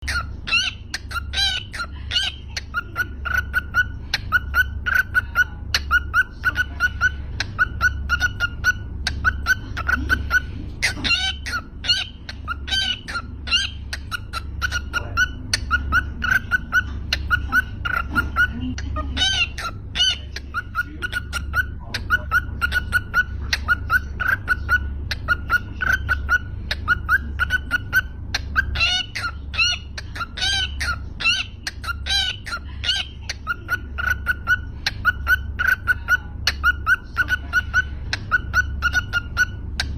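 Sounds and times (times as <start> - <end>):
bird chirping: 0.0 - 39.9
steady low hum: 0.0 - 39.9.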